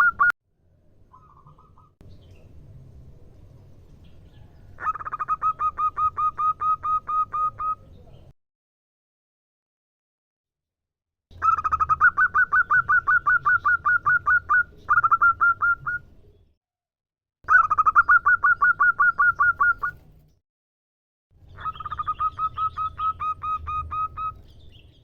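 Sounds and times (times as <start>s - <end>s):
dove cooing rapidly: 4.8s - 7.9s, 11.4s - 16.0s, 21.6s - 24.4s.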